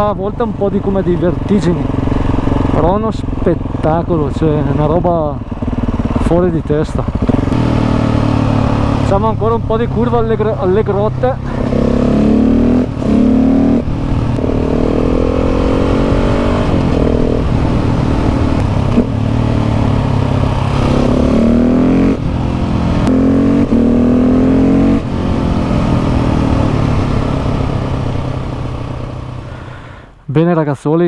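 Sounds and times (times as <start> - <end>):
motorcycle engine revving through gears: 0.0 - 29.8.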